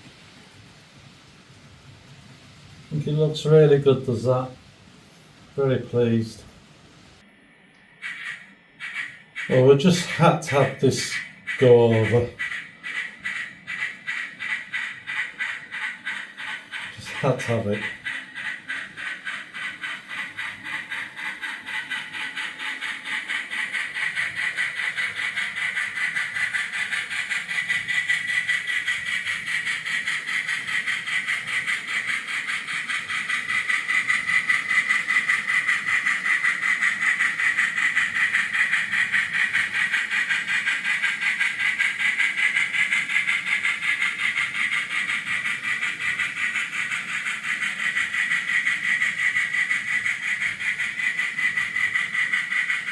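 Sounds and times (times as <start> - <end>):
wheel noise fluttering: 0.0 - 7.3, 8.0 - 52.9
model train motor whine: 16.9 - 52.9.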